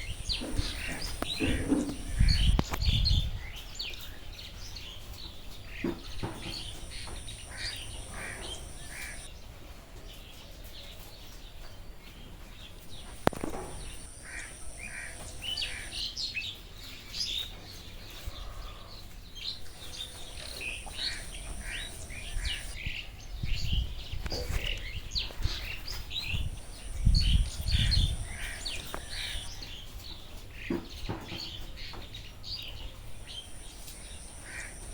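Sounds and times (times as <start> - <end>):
steady high whine: 0.0 - 2.8, 6.0 - 9.3, 12.8 - 16.2, 19.4 - 22.8, 26.1 - 29.6, 32.8 - 34.9
birds chirping and calling: 0.0 - 9.3, 12.6 - 34.9.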